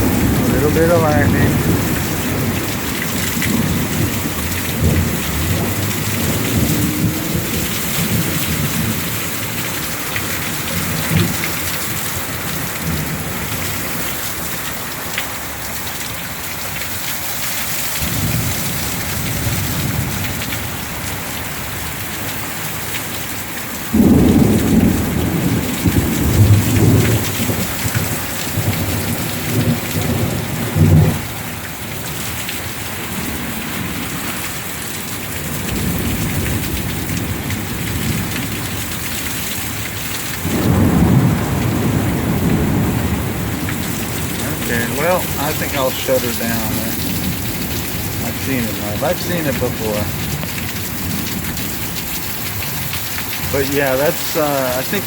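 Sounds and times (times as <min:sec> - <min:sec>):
thunder rumbling: 0:00.0 - 0:13.9, 0:23.9 - 0:32.0, 0:35.2 - 0:55.0
heavy rain pouring: 0:00.0 - 0:55.0.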